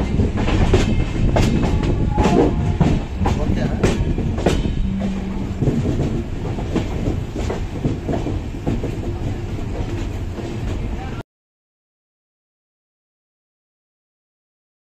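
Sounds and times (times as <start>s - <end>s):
train rumbling: 0.0s - 11.2s
wheels clicking over rail joints: 0.0s - 11.2s.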